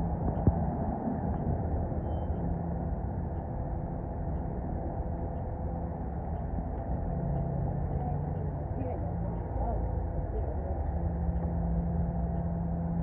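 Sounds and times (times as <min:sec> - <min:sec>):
strong wind rumble: 0:00.0 - 0:08.6
city traffic: 0:00.0 - 0:13.0
faint engine hum: 0:00.0 - 0:13.0.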